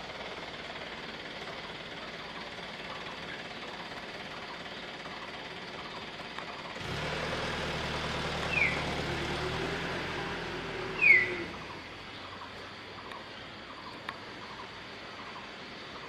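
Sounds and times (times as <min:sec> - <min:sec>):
vehicle engine hum: 0:00.0 - 0:16.0
falling bird chirps: 0:08.3 - 0:09.4, 0:10.8 - 0:16.0.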